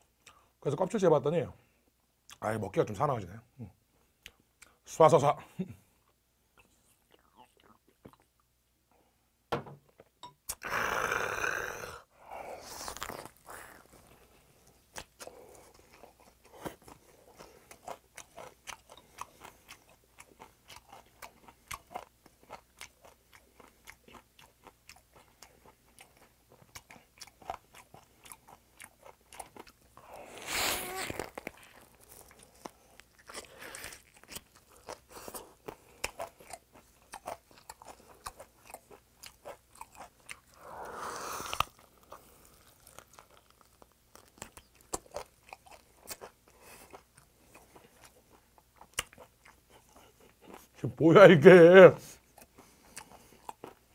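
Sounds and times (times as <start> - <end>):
wet chewing and crunching: 12.6 - 50.8, 52.0 - 53.9.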